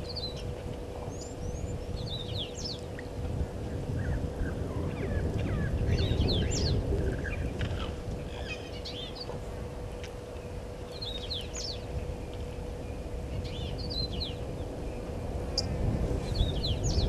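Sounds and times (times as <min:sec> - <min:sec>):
faint steady hum: 0:00.0 - 0:17.0
low outdoor rumble: 0:00.0 - 0:17.0
small bird chirping: 0:10.9 - 0:11.9.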